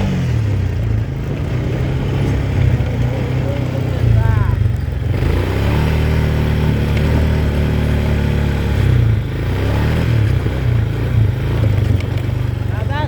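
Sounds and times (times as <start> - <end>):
quad bike engine droning: 0.0 - 13.0.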